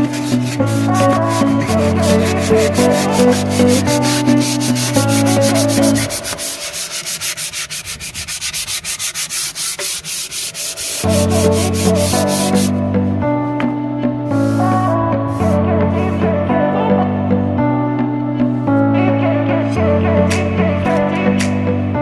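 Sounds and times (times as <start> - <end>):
sandpaper rubbing back and forth: 0.0 - 12.7, 14.4 - 14.8
background music: 0.0 - 22.0.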